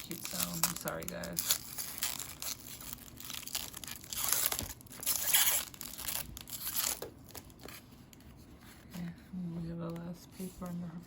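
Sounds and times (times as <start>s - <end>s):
plastic wrap peeling and crinkling: 0.0s - 9.2s.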